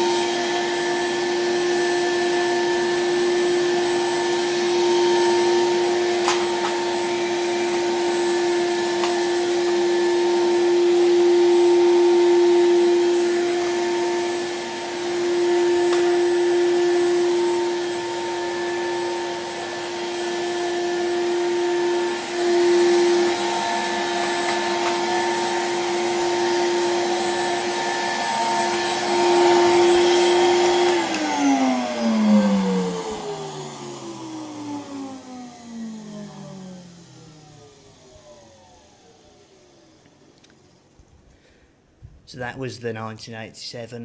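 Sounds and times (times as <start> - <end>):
vacuum cleaner motor whine: 0.0 - 41.2.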